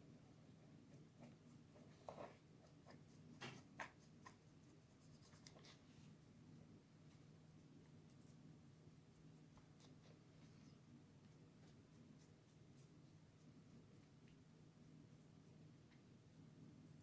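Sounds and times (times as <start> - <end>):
faint steady hum: 0.0 - 17.0
soft taps and scrapes: 1.2 - 4.4.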